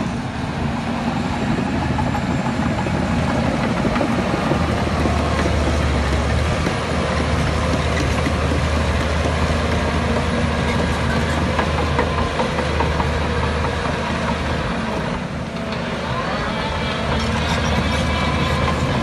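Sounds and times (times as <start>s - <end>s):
diesel engine drone: 0.0s - 19.0s.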